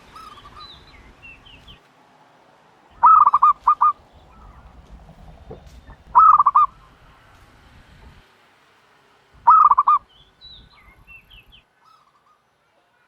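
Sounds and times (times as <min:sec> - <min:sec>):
turtle dove calling: 0:00.0 - 0:01.8, 0:02.9 - 0:08.2, 0:09.4 - 0:12.5
faint high chirps: 0:03.0 - 0:07.0.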